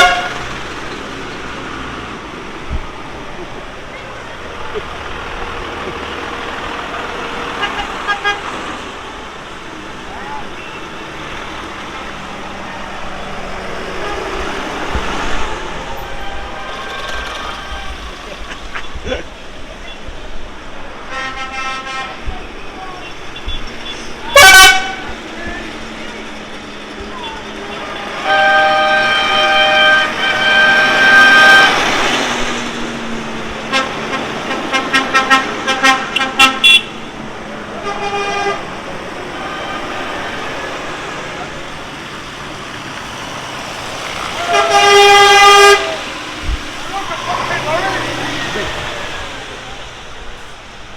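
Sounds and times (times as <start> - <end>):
vehicle horn blasts and toots: 0.0 - 0.6, 7.6 - 8.5, 21.0 - 22.3, 24.2 - 25.2, 27.8 - 32.2, 33.7 - 37.2, 37.8 - 38.7, 44.4 - 46.0
tractor engines driving past: 0.0 - 50.9.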